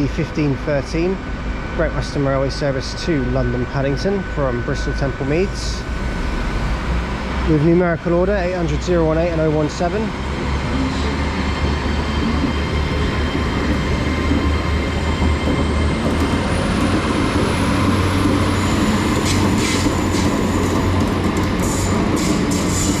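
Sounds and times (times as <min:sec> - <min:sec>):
diesel train engine rumbling: 0:00.0 - 0:23.0
thin high whine: 0:00.6 - 0:06.9
train wheels clicking on track: 0:08.7 - 0:23.0.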